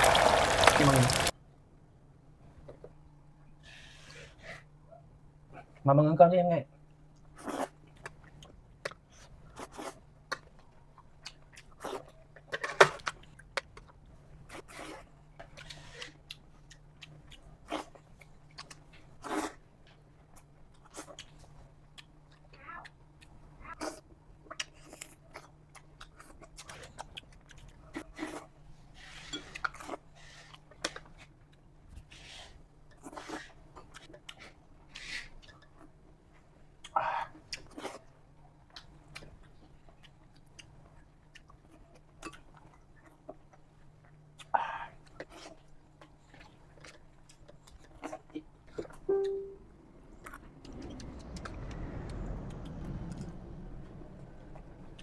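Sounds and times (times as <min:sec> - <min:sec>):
person chewing food: 0:07.4 - 0:31.6, 0:32.9 - 0:49.0
brief hum: 0:49.1 - 0:49.7
chewing clicks: 0:50.2 - 0:55.0.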